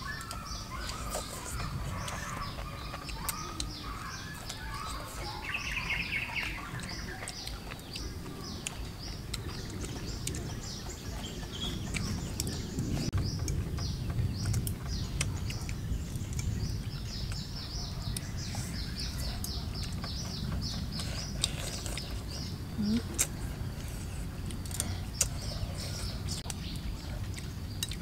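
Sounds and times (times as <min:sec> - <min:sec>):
low rumble: 0:06.6 - 0:27.9.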